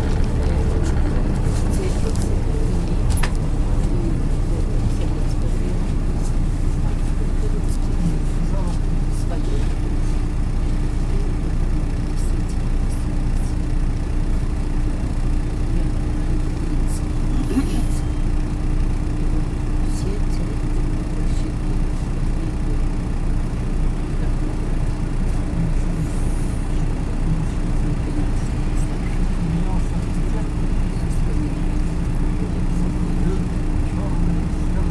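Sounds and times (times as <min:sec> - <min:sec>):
bus engine and road drone: 0:00.0 - 0:34.9.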